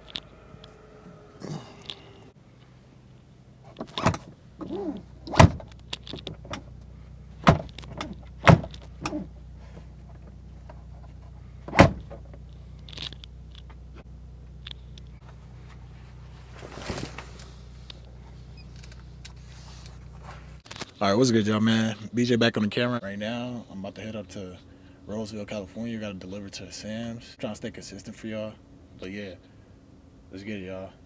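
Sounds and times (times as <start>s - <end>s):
vehicle engine hum: 0.0s - 20.8s
sharp knocks and clunks: 5.2s - 6.7s, 7.4s - 9.3s, 11.7s - 12.2s
short squeak: 18.4s - 19.8s.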